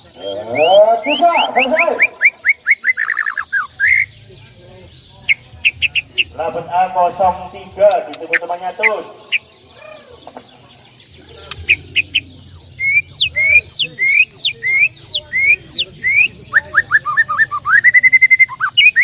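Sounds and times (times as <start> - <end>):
songbird whistles and trill: 0.1 - 4.1, 11.5 - 19.0.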